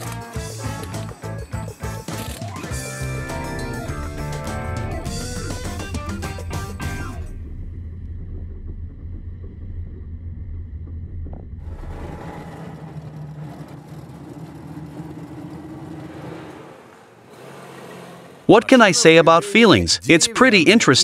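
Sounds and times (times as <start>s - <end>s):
car engine rumble: 3.4s - 18.7s
road noise in car cabin: 7.4s - 19.9s.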